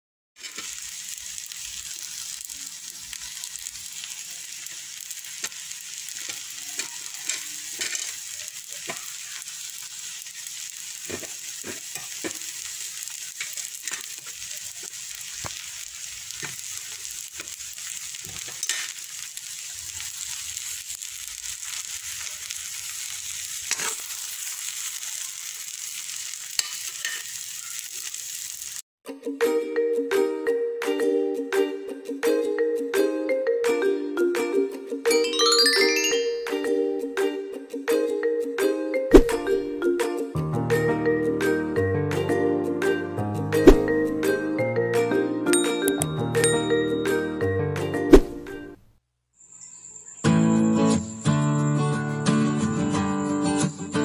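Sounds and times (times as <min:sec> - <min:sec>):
noodles sizzling in a hot pan: 0:00.4 - 0:28.8, 0:43.6 - 0:44.6, 0:45.6 - 0:47.5.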